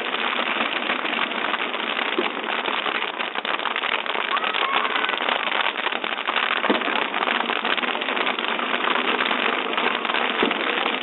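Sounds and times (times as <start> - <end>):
bonfire crackling: 0.0 - 11.0.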